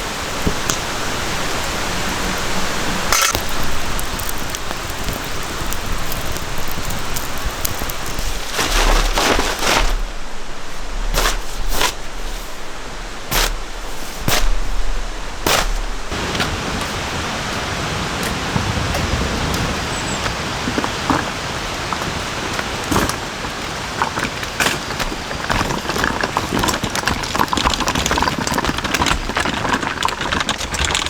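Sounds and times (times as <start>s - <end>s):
raindrops ticking on a surface: 0.0s - 10.1s, 13.0s - 31.0s
steady rain falling: 0.0s - 31.0s.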